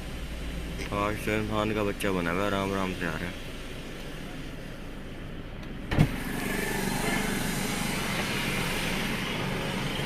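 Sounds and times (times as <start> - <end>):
car running low hum: 0.0 - 10.0
sharp thump: 5.9 - 6.2.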